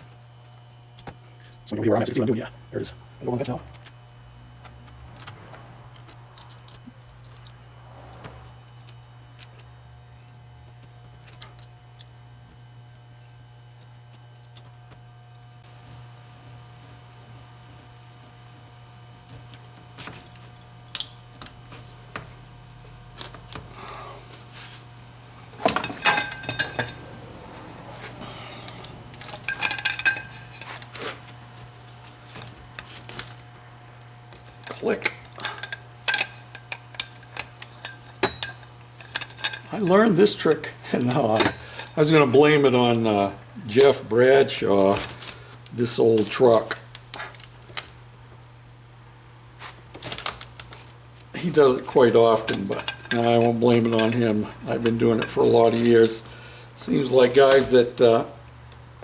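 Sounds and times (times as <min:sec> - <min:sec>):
steady low hum: 0:00.0 - 0:59.0
metal parts clicking and rattling: 0:25.6 - 0:27.1, 0:28.6 - 0:31.4, 0:34.4 - 0:40.4, 0:49.9 - 0:56.2
metal tools clinking on workbench: 0:25.6 - 0:27.2, 0:28.6 - 0:31.1, 0:34.6 - 0:40.1, 0:51.4 - 0:56.2.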